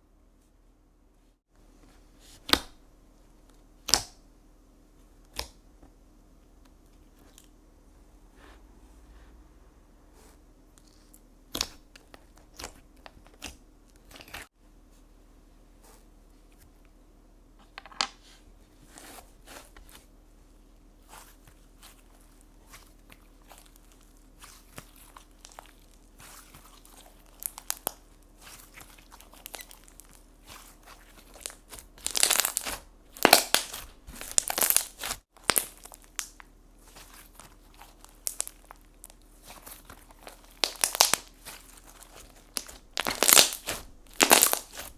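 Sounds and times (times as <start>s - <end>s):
slime crackling and popping: 23.1s - 44.9s.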